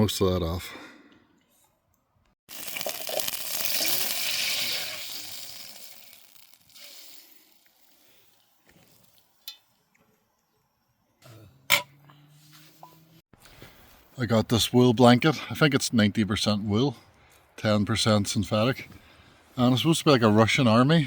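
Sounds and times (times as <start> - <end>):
water sizzling in hot pan: 2.5 - 8.4.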